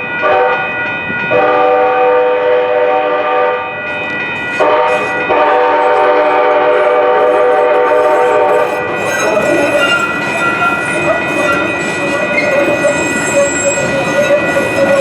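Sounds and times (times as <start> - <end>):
train on tracks: 0.0 - 15.0
train horn blasts: 0.2 - 0.7, 1.3 - 3.8, 4.6 - 10.0.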